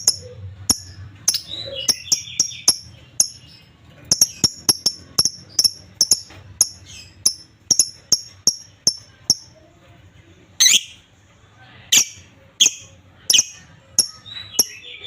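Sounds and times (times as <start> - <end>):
bird chatter: 0.0 - 9.5
lovebirds chirping: 0.0 - 9.6, 11.9 - 15.0.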